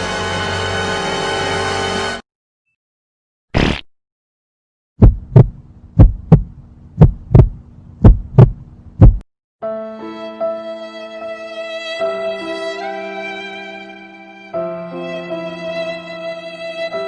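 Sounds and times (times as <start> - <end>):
heartbeat thumps: 5.0 - 9.2
low steady hum: 5.0 - 9.2.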